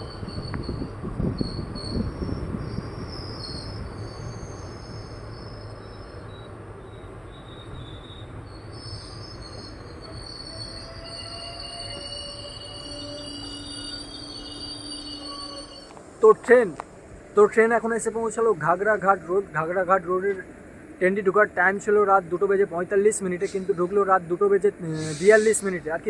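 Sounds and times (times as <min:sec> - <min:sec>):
wheel and brake squeals: 0:00.0 - 0:16.1
train rumbling: 0:00.0 - 0:26.0.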